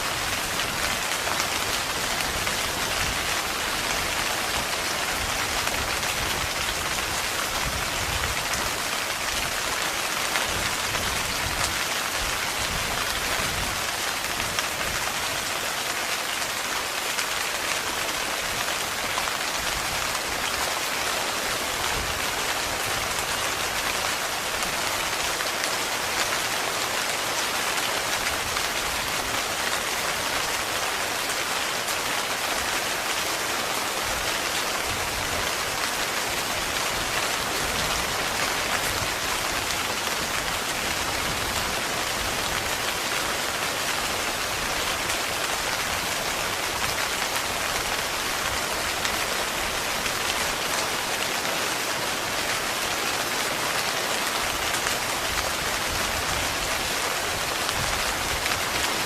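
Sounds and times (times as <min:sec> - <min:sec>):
heavy rain on tent fabric: 0:00.0 - 0:59.0.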